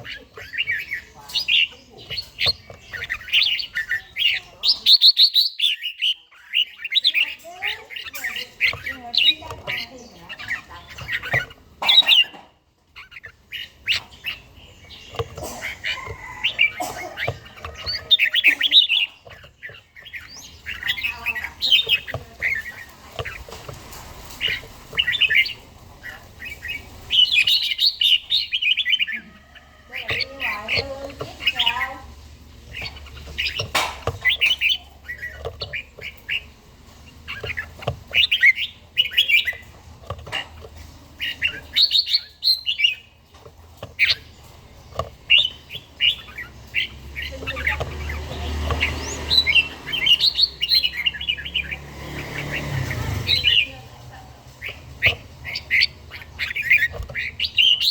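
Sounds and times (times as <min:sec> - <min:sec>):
bird warbling chirps: 0:00.0 - 0:57.9.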